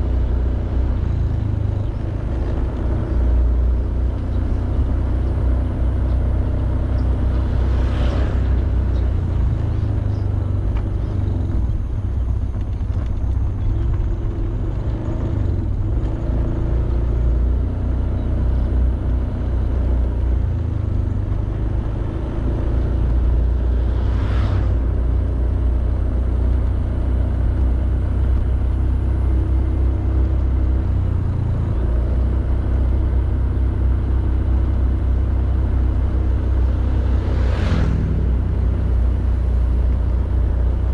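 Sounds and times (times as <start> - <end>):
road noise: 0.0 - 40.9
scooter engine rumble: 0.0 - 40.9
brief whooshes: 7.5 - 9.3, 23.8 - 25.0, 37.1 - 38.3.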